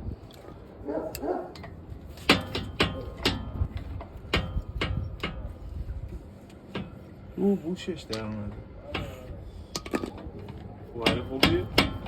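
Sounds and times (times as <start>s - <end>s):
hammer striking metal: 11.0s - 12.0s.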